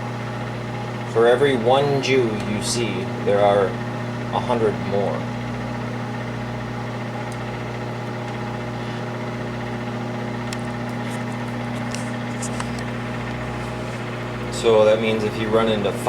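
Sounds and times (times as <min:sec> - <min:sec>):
microwave oven humming: 0:00.0 - 0:16.0.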